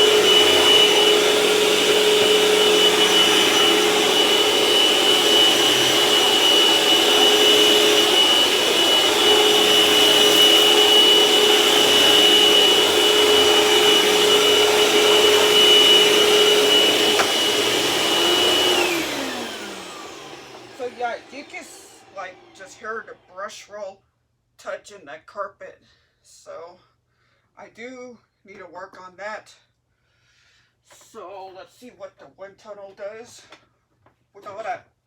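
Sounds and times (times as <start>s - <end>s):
upright vacuum running: 0.0s - 23.3s.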